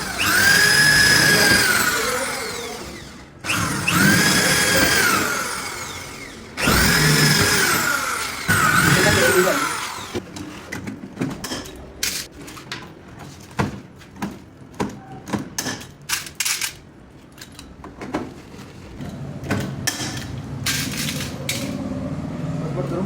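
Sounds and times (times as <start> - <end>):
power tool winding down: 0.0 - 10.2
tools clicking and knocking: 14.2 - 18.2.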